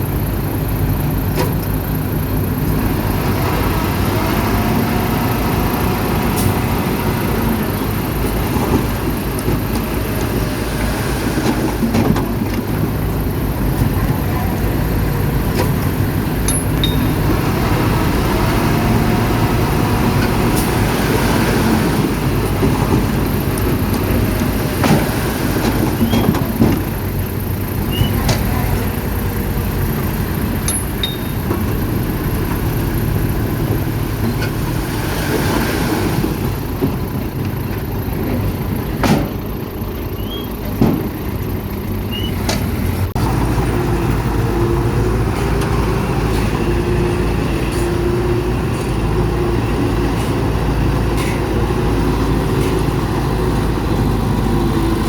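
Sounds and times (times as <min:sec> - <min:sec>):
heavy diesel machinery running: 0:00.0 - 0:55.0
sharp metallic clanks: 0:15.5 - 0:17.4, 0:30.6 - 0:32.6.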